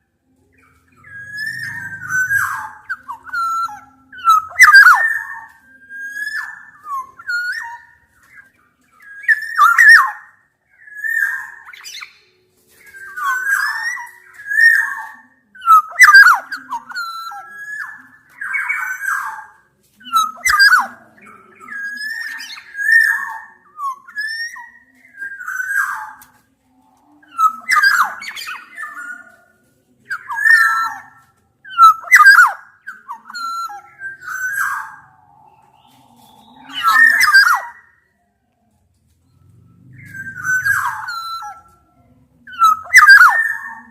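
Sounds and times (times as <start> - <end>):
orioles whistling: 0.6 - 12.2, 12.8 - 29.4, 30.1 - 38.1, 39.3 - 41.9, 42.5 - 43.9
bird squawks: 39.9 - 41.8, 42.5 - 43.9.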